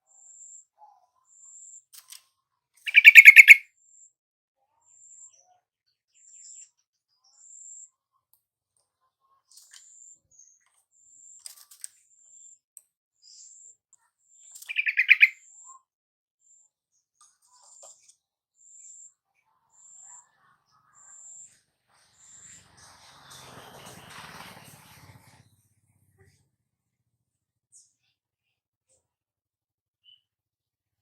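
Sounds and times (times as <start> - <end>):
bulbul bubbling calls: 2.9 - 3.6, 14.7 - 15.3
faint high chirps: 2.9 - 3.6, 14.4 - 15.9.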